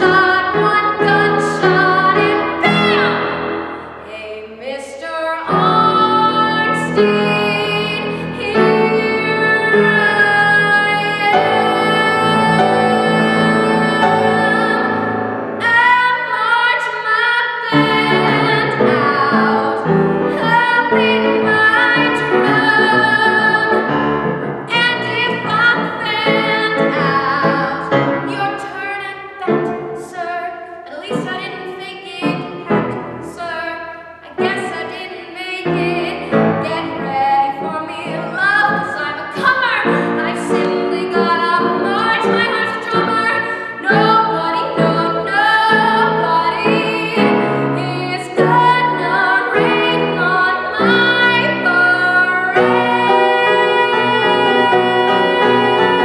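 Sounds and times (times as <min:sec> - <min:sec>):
woman singing a show tune: 0:24.7 - 0:32.7
instrumental accompaniment: 0:35.7 - 0:56.0.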